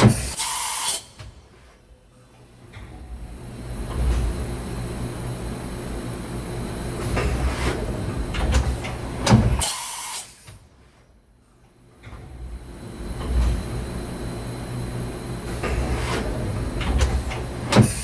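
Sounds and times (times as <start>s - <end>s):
mechanical clunks and clicks: 7.0s - 9.6s, 15.4s - 18.0s.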